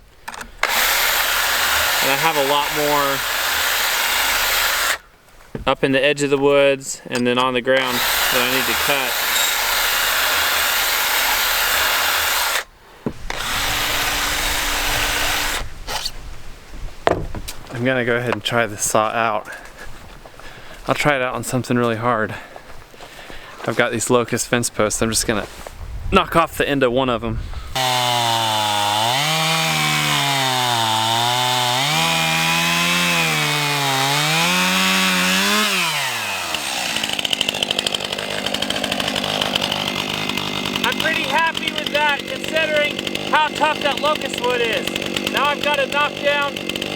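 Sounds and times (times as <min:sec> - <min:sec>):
drill file grinding chain: 0:00.3 - 0:05.0, 0:07.7 - 0:12.7, 0:13.3 - 0:16.1, 0:27.7 - 0:46.9
drill motor hum: 0:00.6 - 0:05.0, 0:07.8 - 0:16.1, 0:27.8 - 0:46.9.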